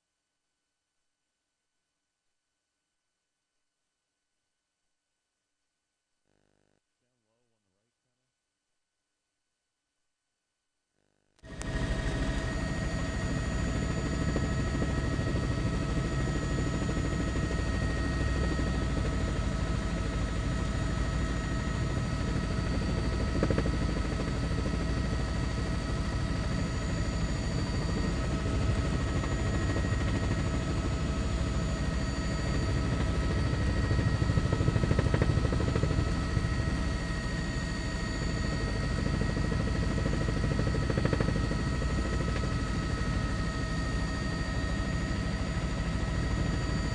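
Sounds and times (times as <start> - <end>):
helicopter rumble: 11.4 - 46.9.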